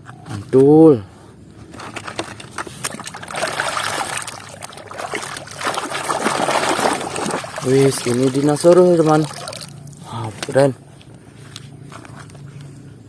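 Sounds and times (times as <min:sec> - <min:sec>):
water sloshing and trickling: 0:01.9 - 0:10.6.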